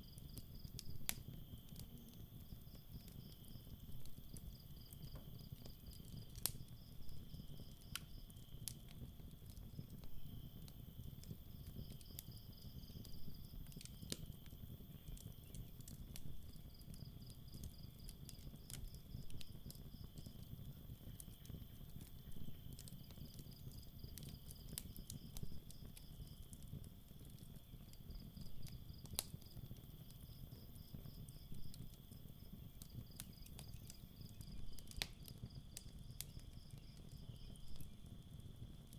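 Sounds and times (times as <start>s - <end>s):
campfire crackling and popping: 0.0s - 38.9s
cricket trill: 27.2s - 38.4s.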